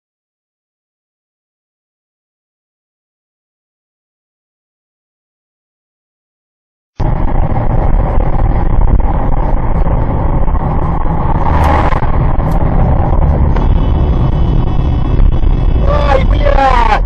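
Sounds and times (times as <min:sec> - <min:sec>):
car driving rumble: 0:07.0 - 0:17.0
brief rush: 0:11.2 - 0:17.0.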